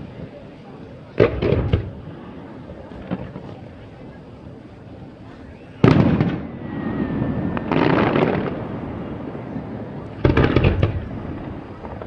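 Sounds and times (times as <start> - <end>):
firework boom with crackling: 1.2 - 2.0, 5.8 - 12.0
sharp firework bangs: 5.8 - 9.3, 10.1 - 12.0.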